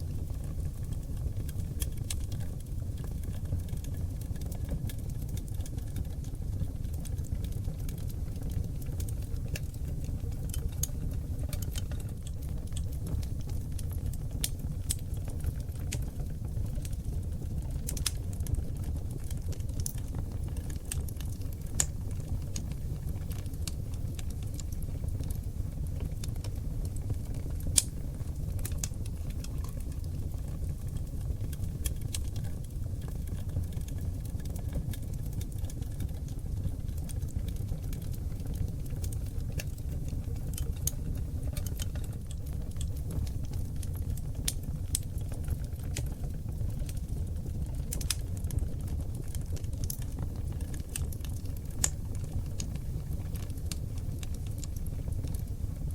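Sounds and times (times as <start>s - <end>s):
logs crackling in fireplace: 0.0s - 55.9s
low rumble of flames: 0.0s - 55.9s.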